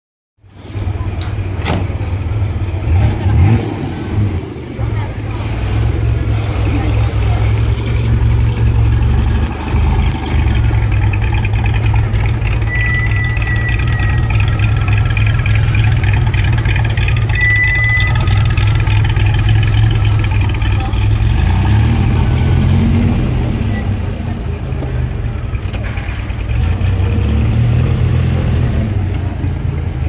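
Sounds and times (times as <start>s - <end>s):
car engine rumbling: 0.4s - 30.0s
short high tones: 12.6s - 15.0s, 17.2s - 18.5s.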